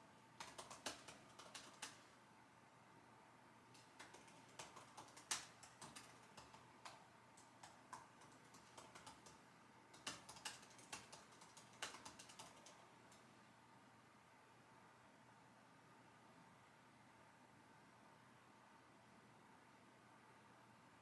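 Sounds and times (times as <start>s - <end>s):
keyboard typing: 0.3s - 2.2s, 3.7s - 13.3s.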